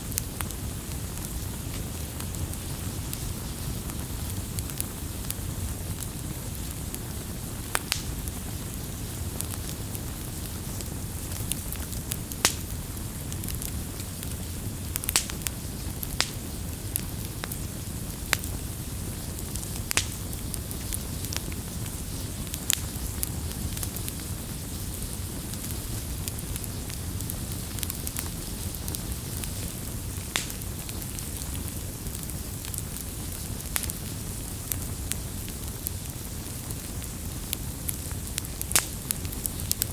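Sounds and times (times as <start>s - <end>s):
fire popping: 0.0s - 39.9s
flames rumbling and hissing: 0.0s - 39.9s.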